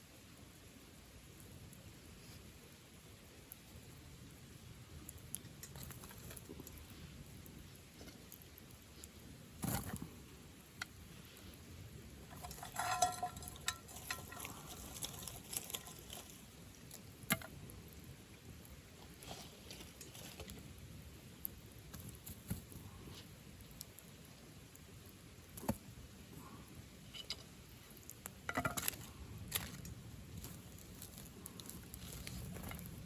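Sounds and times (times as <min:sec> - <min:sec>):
campfire crackling and popping: 0:00.2 - 0:33.0.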